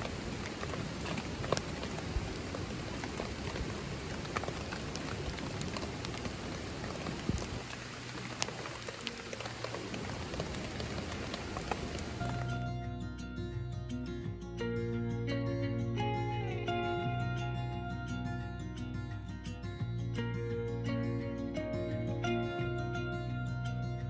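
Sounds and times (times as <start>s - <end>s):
steady rain falling: 0.0s - 12.9s
sharp ticks of raindrops: 0.0s - 13.0s
plucked-string music: 10.9s - 24.0s.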